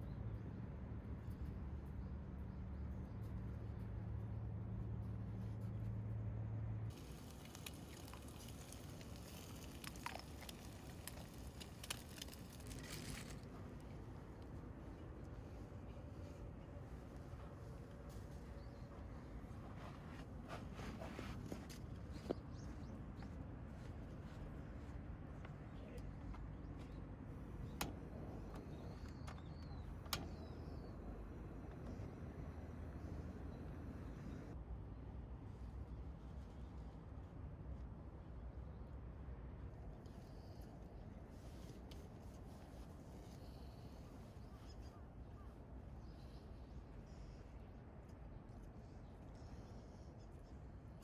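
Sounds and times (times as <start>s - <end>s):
steady low hum: 0.0s - 51.0s
campfire crackling and popping: 7.0s - 13.4s
faint bird chirps: 43.2s - 47.8s.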